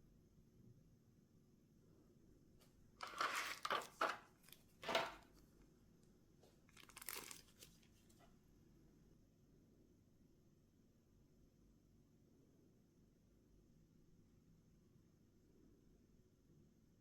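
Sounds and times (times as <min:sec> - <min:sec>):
packaging crinkling: 0:03.0 - 0:05.2, 0:06.7 - 0:08.0.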